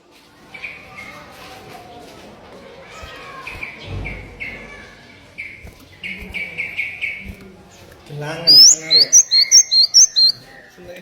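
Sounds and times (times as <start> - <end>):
people talking in background: 0.0 - 11.0
small songbird chirping: 3.0 - 11.0.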